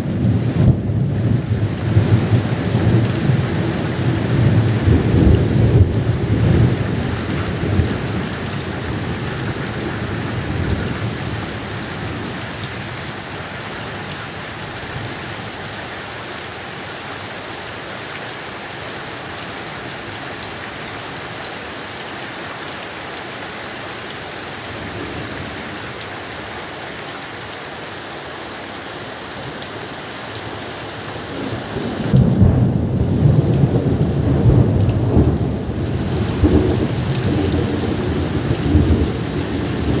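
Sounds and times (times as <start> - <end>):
steady rain: 0.0 - 40.0
thunder rumbling: 31.3 - 40.0.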